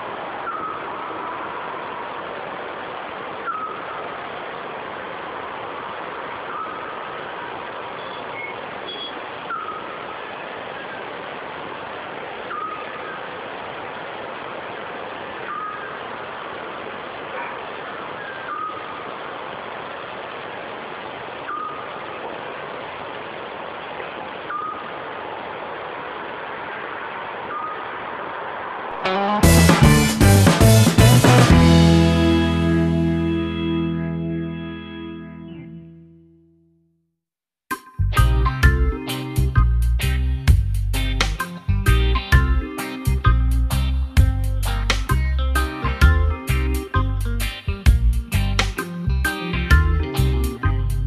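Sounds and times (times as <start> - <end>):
owl whistled call: 18.2 - 19.0
background hiss: 37.7 - 51.0.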